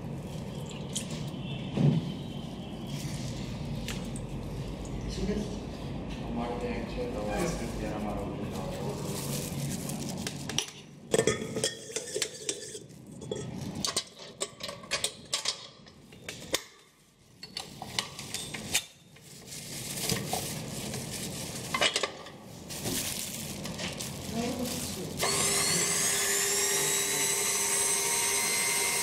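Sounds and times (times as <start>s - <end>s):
metal bowl clinking and knocking: 10.5s - 15.6s.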